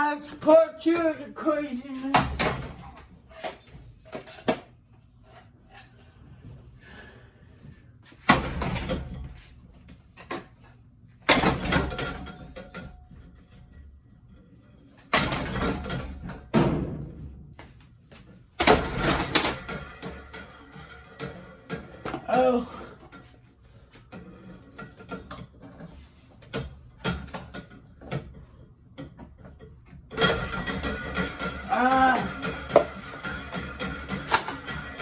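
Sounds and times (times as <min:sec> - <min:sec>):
clattering and rattling: 0:24.0 - 0:35.0
ceiling fan crashing: 0:30.1 - 0:35.0.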